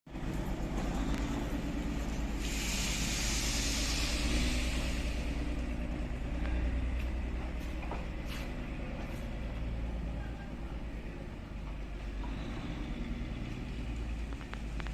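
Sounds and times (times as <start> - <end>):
vehicle rumble: 0.1 - 14.9
loud hiss: 2.3 - 5.6.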